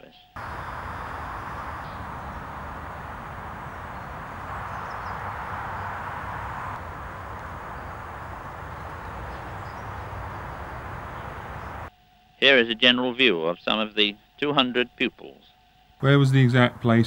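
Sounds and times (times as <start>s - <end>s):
faint bird chirps: 0.4s - 11.9s
highway traffic rushing: 0.4s - 11.9s, 16.4s - 17.0s.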